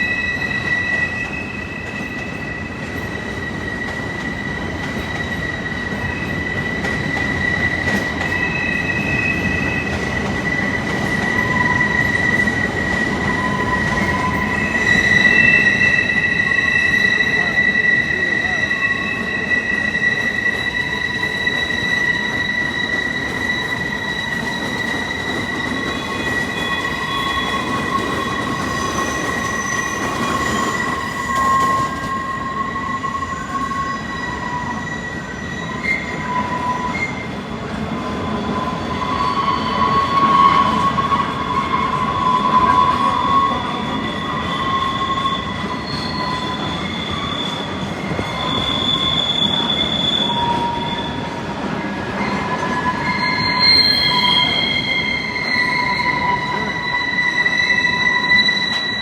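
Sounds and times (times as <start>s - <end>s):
train rumbling along track: 0.0s - 59.0s
train wheels squealing: 0.0s - 59.0s.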